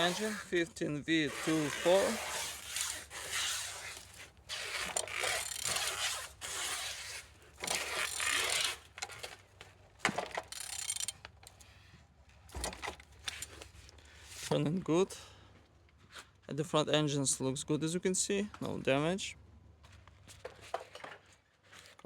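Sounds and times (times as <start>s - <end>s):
engine scraping as turned by hand: 0.0s - 11.8s.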